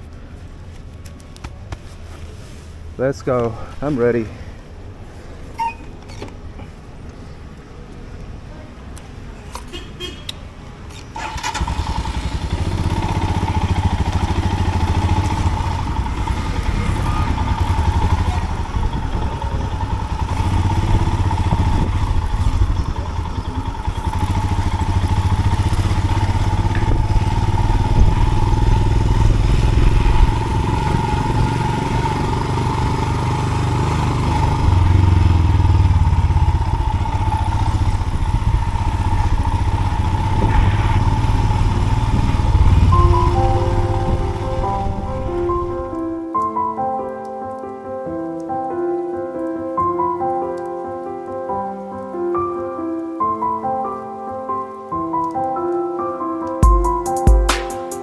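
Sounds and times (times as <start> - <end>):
motorcycle riding on dirt road: 11.1 - 46.2
steady high tone: 40.2 - 46.2.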